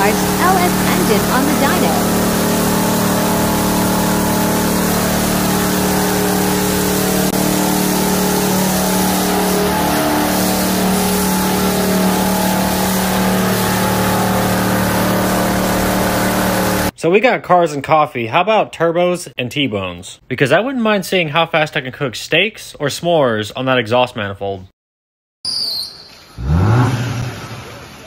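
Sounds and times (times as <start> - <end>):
engine running loud and steady: 0.0 - 16.9.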